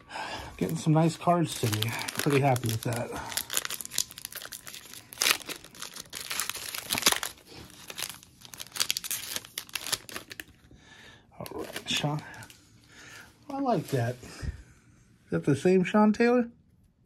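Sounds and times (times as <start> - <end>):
wrapper crinkling and tearing: 0.6 - 10.7, 11.4 - 12.6.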